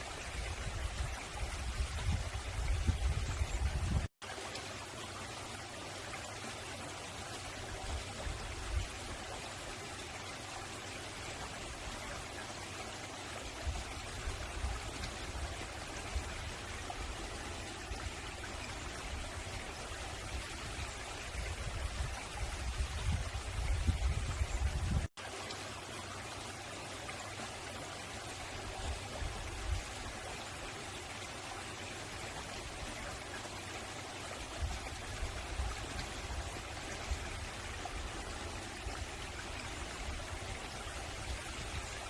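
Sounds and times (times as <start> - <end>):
stream flowing over rocks: 0.0 - 42.0.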